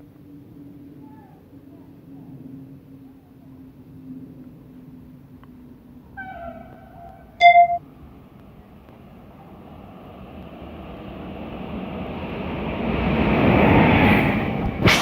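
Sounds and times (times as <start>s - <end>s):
train rumble passing: 4.3s - 15.0s.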